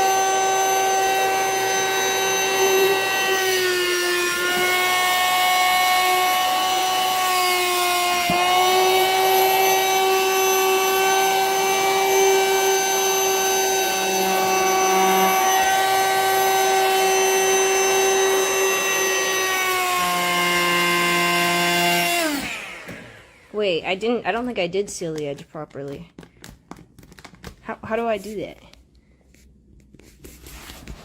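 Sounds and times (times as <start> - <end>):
vacuum cleaner motor whining: 0.0 - 24.2.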